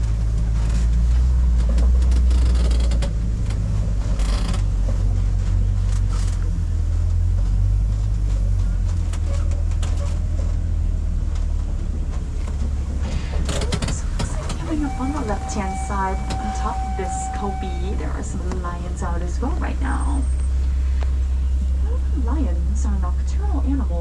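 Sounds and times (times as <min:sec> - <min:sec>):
vehicle body creaks and rattles: 0:00.0 - 0:16.8
truck engine rumbling: 0:00.0 - 0:24.0.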